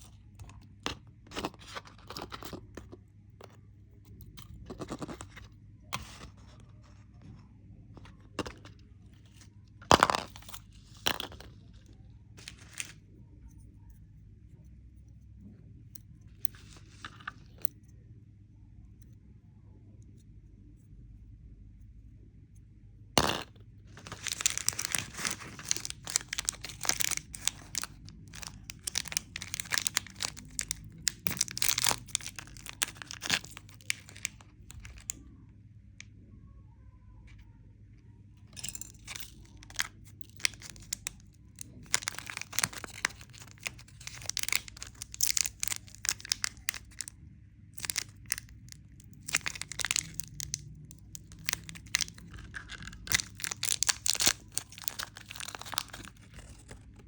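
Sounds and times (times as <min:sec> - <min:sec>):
candy wrapper crinkling and tearing: 0:00.0 - 0:02.9, 0:04.2 - 0:07.0, 0:08.0 - 0:13.1, 0:16.3 - 0:17.7, 0:23.2 - 0:35.2, 0:38.5 - 0:57.0.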